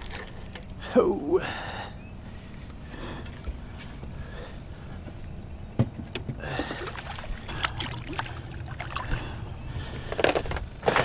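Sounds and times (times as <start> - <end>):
fish splashing at water surface: 6.6 - 9.4.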